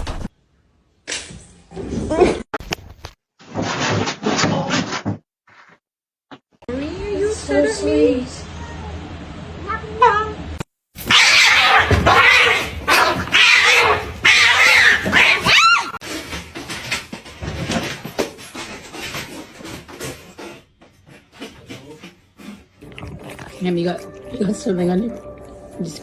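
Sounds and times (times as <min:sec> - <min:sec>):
cat caterwauling: 0:11.0 - 0:16.0.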